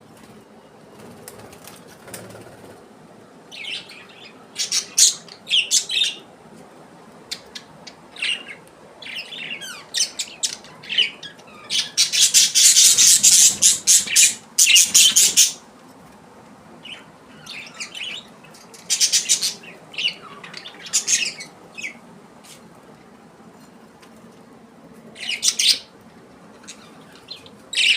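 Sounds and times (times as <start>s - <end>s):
parrots chirping and squawking: 3.6s - 6.2s, 7.3s - 15.6s, 16.8s - 22.0s, 25.2s - 25.9s, 26.5s - 27.9s.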